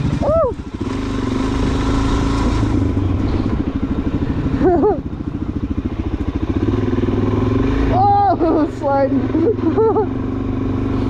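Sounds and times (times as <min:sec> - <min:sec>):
motorcycle engine at low revs: 0:00.0 - 0:11.0
person shouting: 0:00.2 - 0:00.6, 0:07.9 - 0:08.8.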